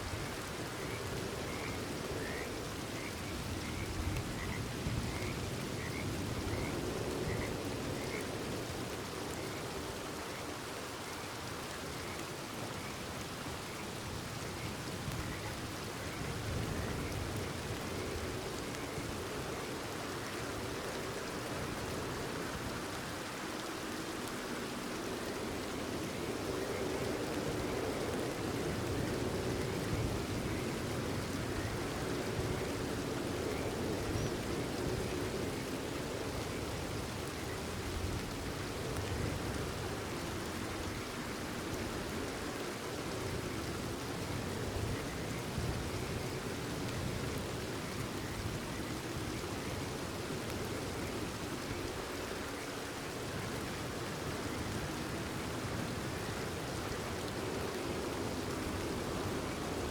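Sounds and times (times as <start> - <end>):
steady rain: 0.0 - 59.9
frogs croaking: 0.2 - 14.0.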